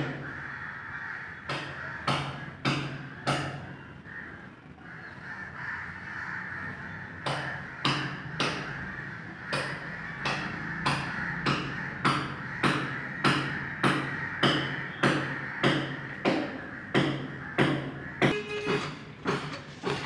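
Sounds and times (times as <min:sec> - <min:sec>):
hammer striking: 0:09.5 - 0:20.0.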